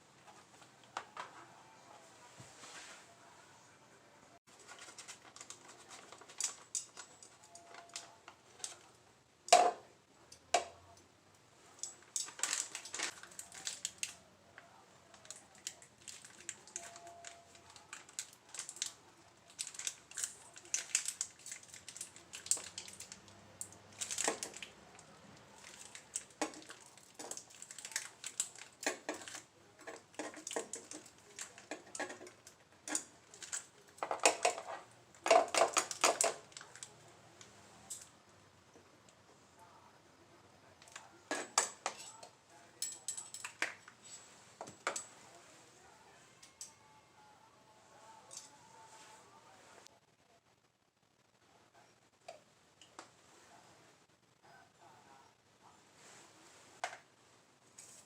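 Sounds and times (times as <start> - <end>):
food being handled: 4.5 - 8.9, 23.9 - 37.0
quick clicks and crinkles: 4.5 - 9.0, 11.7 - 38.2, 40.8 - 45.3.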